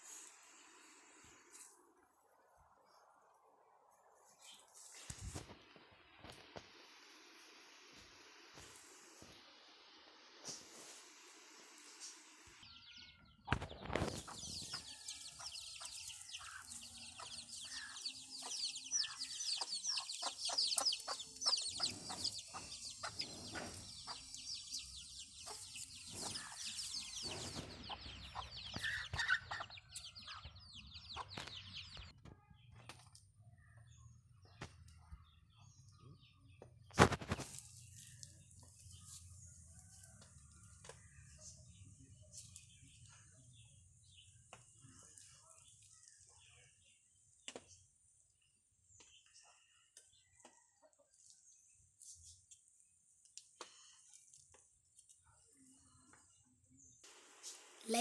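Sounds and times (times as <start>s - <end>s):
chickens clucking: 13.5s - 32.1s.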